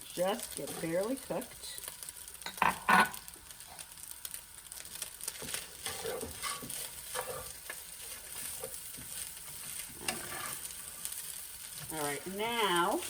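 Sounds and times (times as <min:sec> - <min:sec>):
fried rice sizzling in a pan: 0:00.0 - 0:13.0
utensil scraping a pan: 0:05.4 - 0:12.0.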